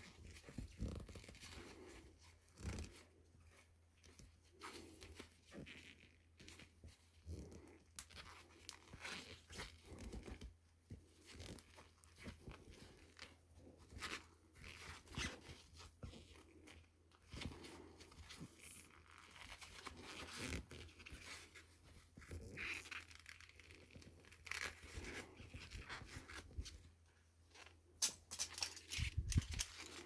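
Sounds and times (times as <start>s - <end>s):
rustling and scraping: 0.0s - 26.9s, 27.5s - 30.0s
clicks of parts handled: 28.0s - 30.0s.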